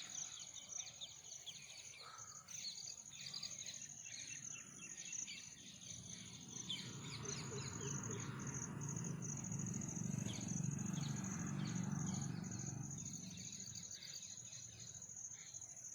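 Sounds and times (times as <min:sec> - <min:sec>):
bird chirps: 0:00.0 - 0:08.6.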